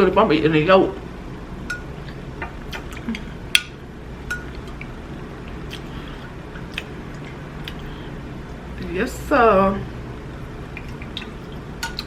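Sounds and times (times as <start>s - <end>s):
low steady hum: 0.0s - 12.0s
wet chewing clicks and smacks: 5.5s - 5.9s, 6.6s - 8.6s, 10.7s - 12.0s.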